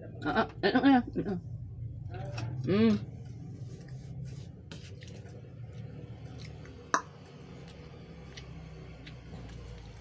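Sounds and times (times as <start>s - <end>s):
person chewing: 4.7s - 10.0s.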